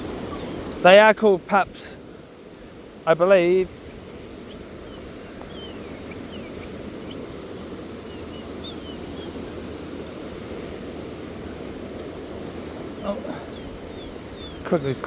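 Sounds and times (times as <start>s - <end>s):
faint bird chirps: 0.0s - 0.7s, 4.4s - 7.3s, 8.0s - 10.0s, 13.0s - 15.0s
surf on rocky shore: 0.0s - 15.0s.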